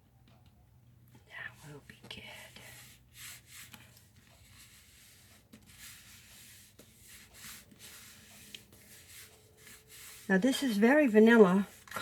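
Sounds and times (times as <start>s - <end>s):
hands rubbing cardstock: 2.4s - 12.0s.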